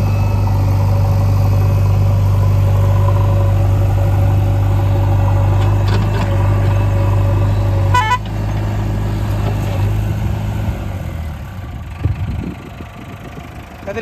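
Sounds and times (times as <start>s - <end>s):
diesel engine running: 0.0s - 14.0s
short horn toot: 7.9s - 8.3s.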